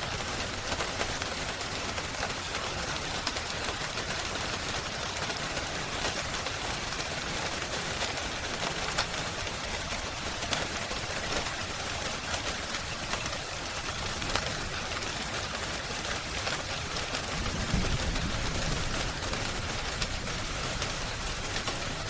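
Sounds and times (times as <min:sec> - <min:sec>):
rain hissing: 0:00.0 - 0:22.0
wood fire crackling: 0:00.0 - 0:22.0.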